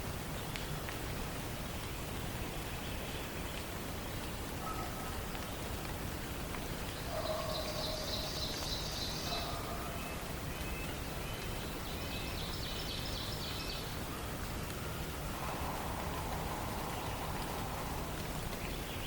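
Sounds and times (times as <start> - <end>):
songbirds singing: 6.7 - 19.0
steady hiss: 10.2 - 19.0.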